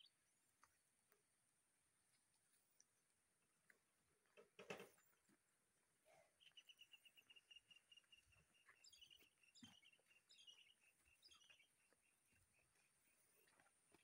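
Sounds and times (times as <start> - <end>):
faint bird song with trills: 0.0 - 0.5, 6.0 - 14.0.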